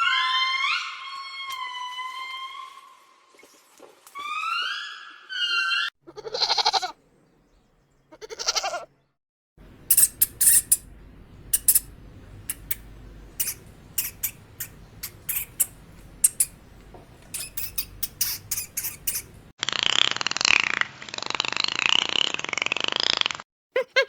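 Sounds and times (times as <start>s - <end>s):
goat bleating: 6.0s - 7.0s, 8.1s - 8.9s
low hum: 9.6s - 19.5s
high squeaks or chirps: 9.9s - 10.9s, 11.5s - 19.5s.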